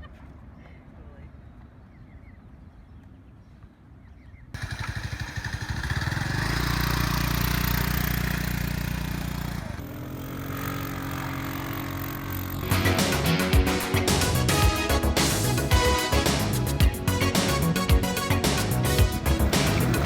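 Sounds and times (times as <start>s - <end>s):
scooter engine running: 4.6s - 20.0s.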